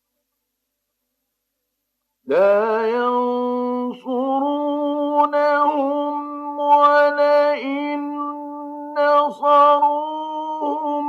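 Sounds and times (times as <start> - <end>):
man chanting melodically: 2.3 - 11.0.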